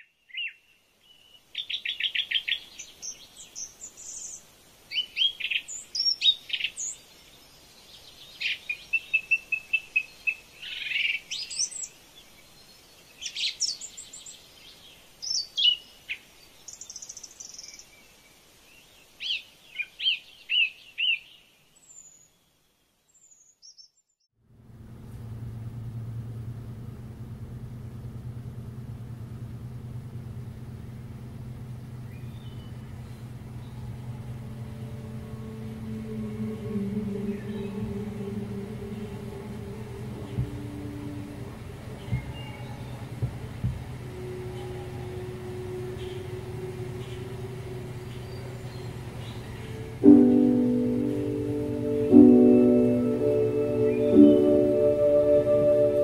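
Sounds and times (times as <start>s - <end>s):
steady low hum: 24.4s - 56.0s
birds chirping and singing: 31.5s - 56.0s.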